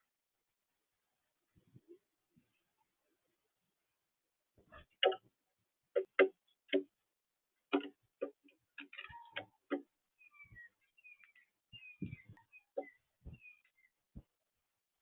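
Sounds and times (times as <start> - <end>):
sharp irregular knocks: 5.0 - 5.3, 5.9 - 7.0, 7.7 - 9.9
faint high bird chirps: 8.8 - 14.3.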